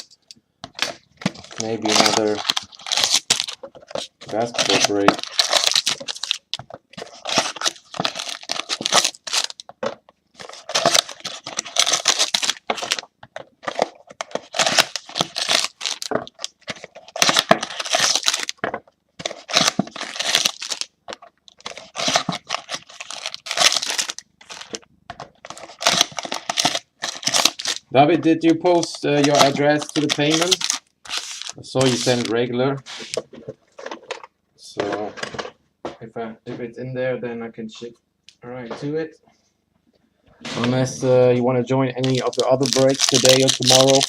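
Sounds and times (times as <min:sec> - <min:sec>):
card wrappers tearing and crinkling: 0:00.7 - 0:09.7, 0:10.4 - 0:24.8, 0:25.4 - 0:27.8, 0:28.4 - 0:33.2, 0:42.0 - 0:44.0.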